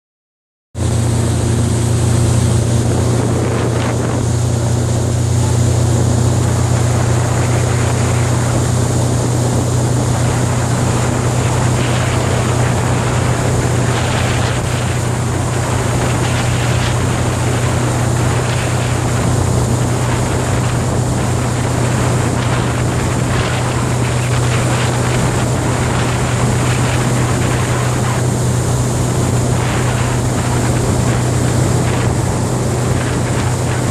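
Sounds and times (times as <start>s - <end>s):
motorboat engine hum: 0.8s - 33.9s
water rushing: 0.8s - 33.9s
wind on microphone: 0.8s - 33.9s.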